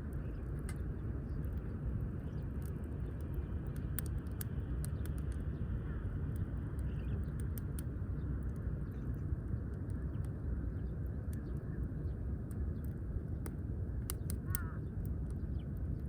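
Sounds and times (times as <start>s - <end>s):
low rumble of fire: 0.0s - 16.0s
wood fire crackling: 0.3s - 5.5s, 6.3s - 8.7s, 11.0s - 16.0s.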